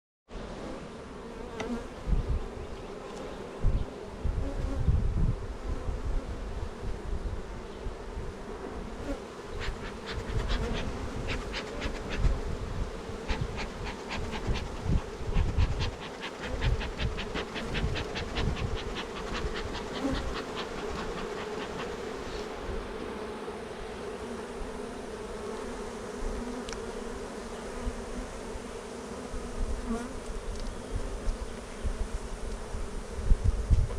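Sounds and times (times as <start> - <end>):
bees buzzing: 8.4 - 32.1
quick ticks: 13.3 - 22.1.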